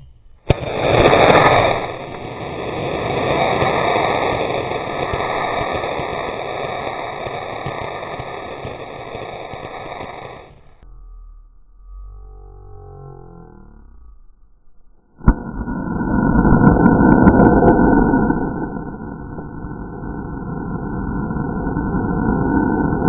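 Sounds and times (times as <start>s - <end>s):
steady rushing noise: 0.4s - 10.8s, 15.2s - 23.0s.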